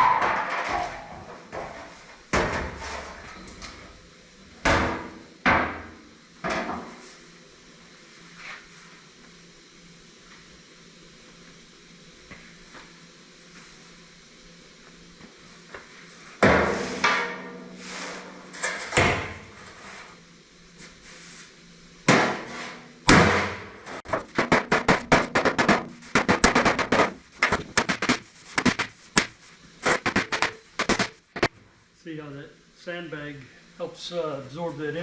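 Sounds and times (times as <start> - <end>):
hammer blows on sheet metal: 23.1 - 31.5.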